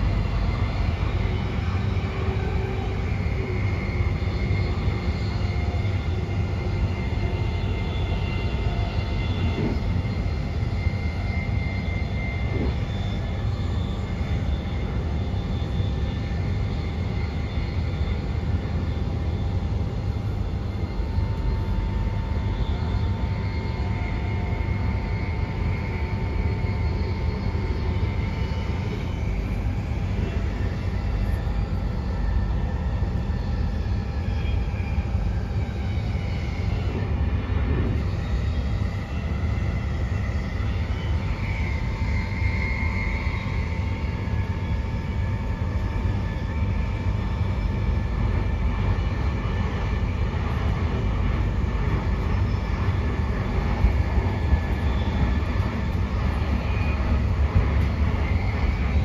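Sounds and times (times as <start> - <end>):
thin whining tones: 0.0 - 59.0
wheels rumbling on track: 9.2 - 10.6, 12.4 - 12.8, 36.0 - 38.8.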